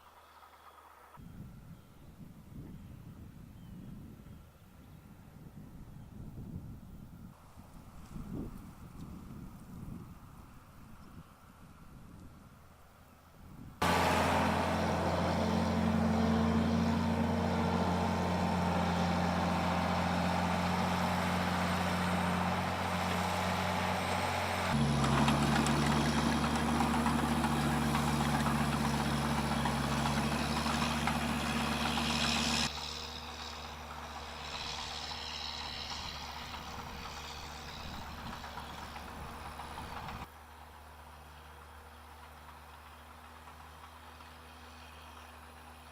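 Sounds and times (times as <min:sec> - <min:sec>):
farm machinery engines running: 0:00.0 - 0:01.2, 0:13.8 - 0:45.9
mechanical rattle and clatter: 0:24.7 - 0:40.3.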